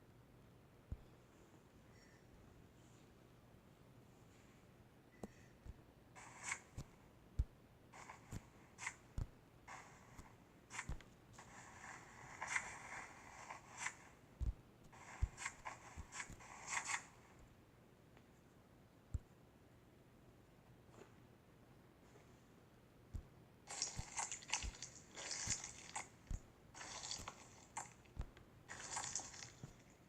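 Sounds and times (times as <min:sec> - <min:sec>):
slime crackling and squelching: 0:23.7 - 0:30.0.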